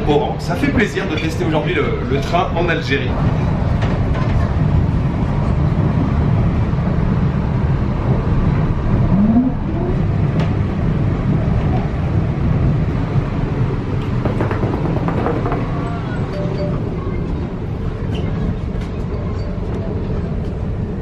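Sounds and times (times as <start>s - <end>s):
train rumbling inside carriage: 0.0s - 21.0s
rising whine: 8.6s - 10.5s.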